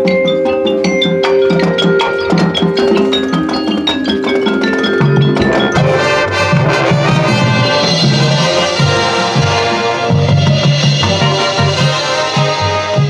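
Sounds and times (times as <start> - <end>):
mallet percussion quick notes: 0.0 - 13.0
marching band playing: 0.1 - 13.0.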